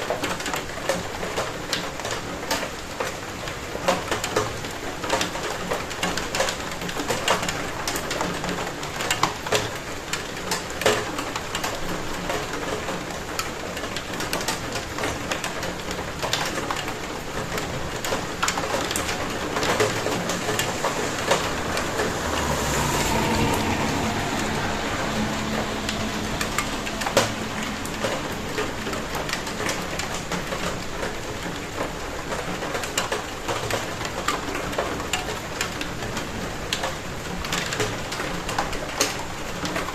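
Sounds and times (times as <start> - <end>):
raindrops clicking on surface: 0.0 - 39.9
steady rain: 0.0 - 39.9
low rumbling sound: 17.8 - 31.2.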